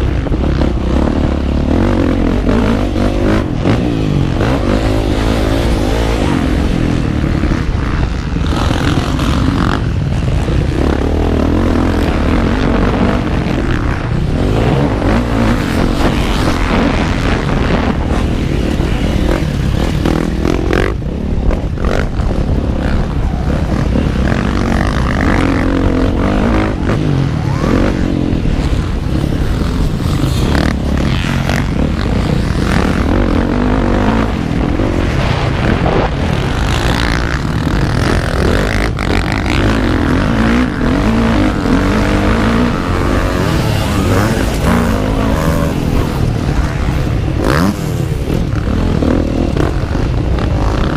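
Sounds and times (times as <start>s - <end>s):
motocross engine revving: 0.0s - 50.9s.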